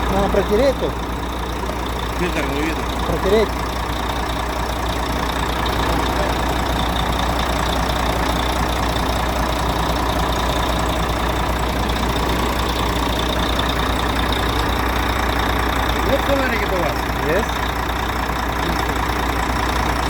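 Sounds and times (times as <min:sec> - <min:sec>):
truck diesel engine idling: 0:00.0 - 0:20.0.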